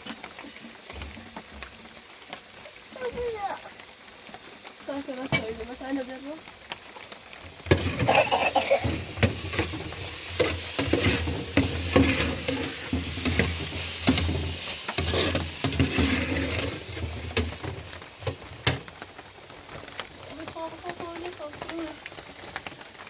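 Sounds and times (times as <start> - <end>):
food sizzling in a frying pan: 0.0 - 23.0
utensil scraping a pan: 7.6 - 18.4.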